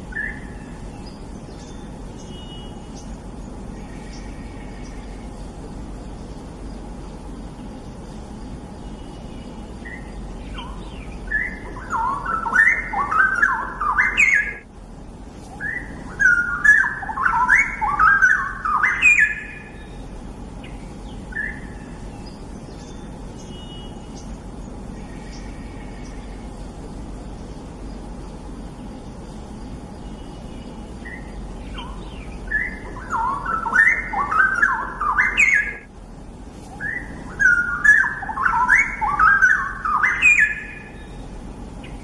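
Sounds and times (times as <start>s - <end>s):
bird bubbling song: 0.0s - 5.6s, 8.8s - 14.7s, 15.5s - 26.6s, 30.0s - 35.9s, 36.7s - 42.0s
faint bird chirps: 0.0s - 14.7s, 15.3s - 35.9s, 36.6s - 42.0s.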